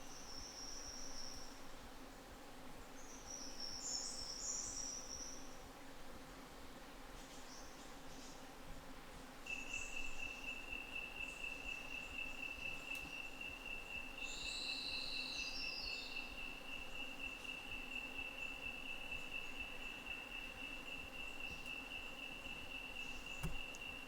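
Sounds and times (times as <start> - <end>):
insect trill: 9.5 - 24.0.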